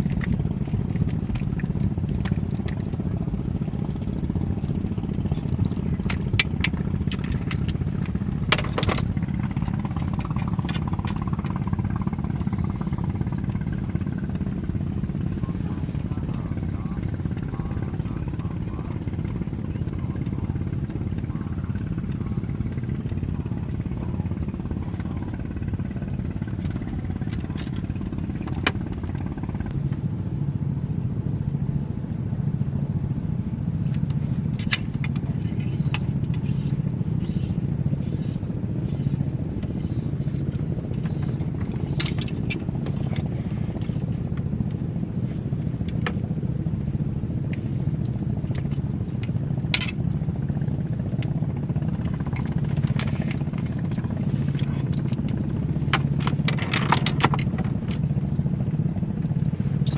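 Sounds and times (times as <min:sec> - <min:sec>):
small boat engine running: 0:00.0 - 0:59.9
sharp clicks and knocks: 0:05.1 - 0:11.7, 0:41.0 - 0:43.2, 0:52.0 - 0:58.0.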